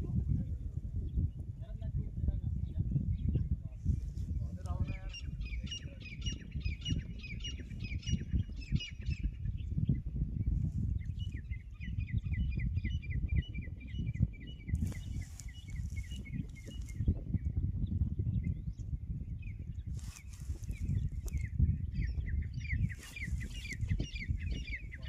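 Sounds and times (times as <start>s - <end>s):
bird chirping rapidly: 20.6s - 25.0s.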